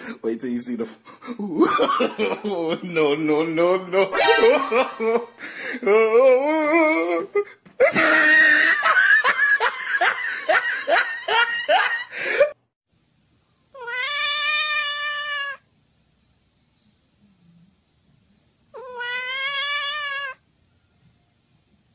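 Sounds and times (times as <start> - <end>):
people laughing: 1.3 - 3.2, 3.9 - 5.5, 7.8 - 12.5
cat yowling and meowing: 13.8 - 15.6, 18.8 - 20.4.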